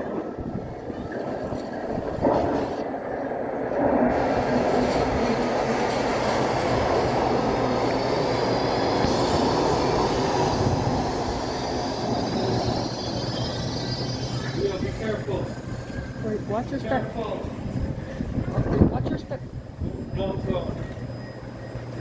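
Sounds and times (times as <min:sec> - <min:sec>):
subway train rumbling: 0:00.0 - 0:22.0
high wheel squeal: 0:04.1 - 0:16.3.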